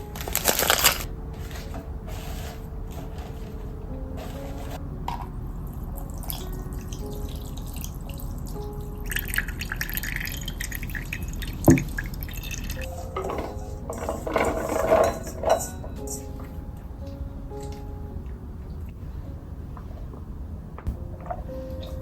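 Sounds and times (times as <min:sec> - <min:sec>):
water dripping and splashing: 0:05.8 - 0:14.0.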